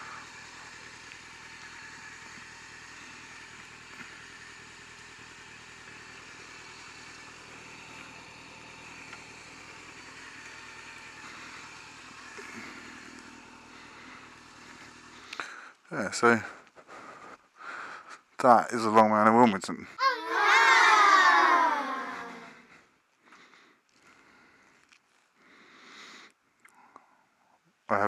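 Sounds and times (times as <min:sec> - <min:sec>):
motorcycle engine running: 0:00.0 - 0:15.5.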